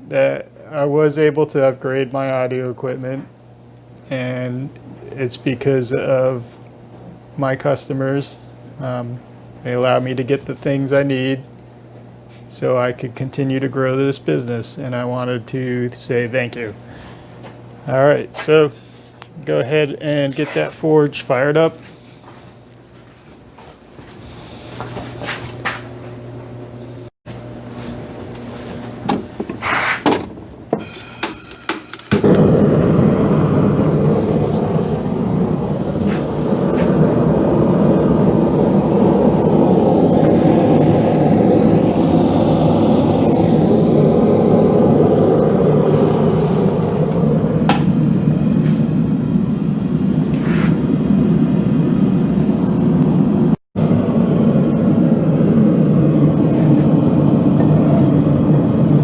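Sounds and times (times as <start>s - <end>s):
forge burner rushing: 27.3s - 59.0s.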